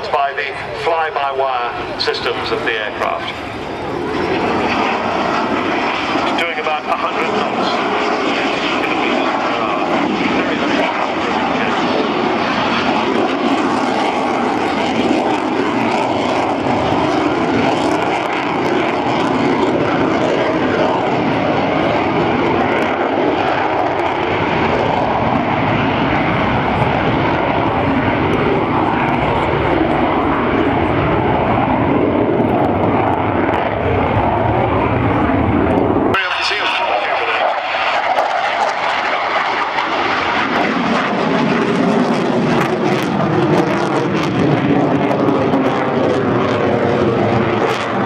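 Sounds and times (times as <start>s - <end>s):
jet fighter flying overhead: 0.0s - 48.0s.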